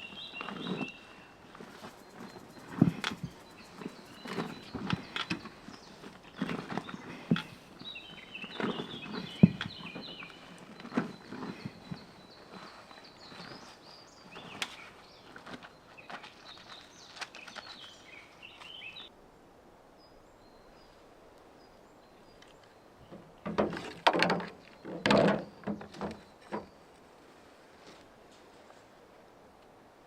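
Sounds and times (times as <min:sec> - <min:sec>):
small birds chirping: 0:00.0 - 0:19.1
sharp knocks and clatter: 0:23.1 - 0:26.7.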